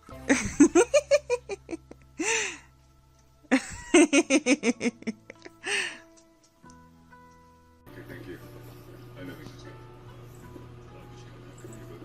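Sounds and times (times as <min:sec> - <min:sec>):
person laughing: 0:00.3 - 0:02.4, 0:03.5 - 0:05.9.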